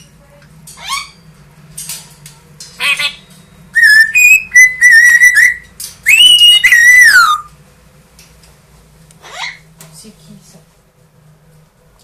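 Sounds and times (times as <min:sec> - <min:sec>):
parrot whistling a tune: 0:03.7 - 0:07.5.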